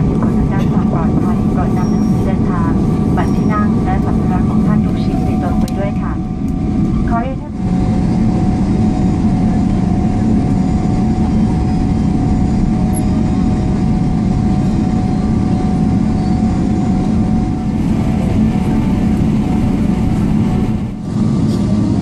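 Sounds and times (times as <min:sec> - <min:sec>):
airplane engine and airflow rumble: 0:00.0 - 0:22.0.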